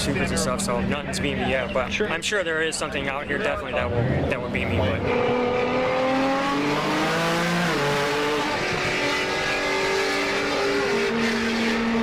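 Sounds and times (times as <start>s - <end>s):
racing car engine accelerating: 3.8s - 12.0s.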